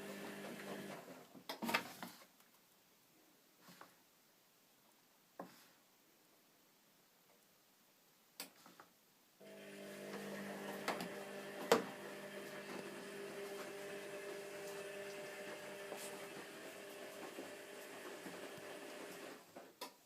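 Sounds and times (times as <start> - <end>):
washing machine hum: 0.0 - 1.2, 9.4 - 19.5.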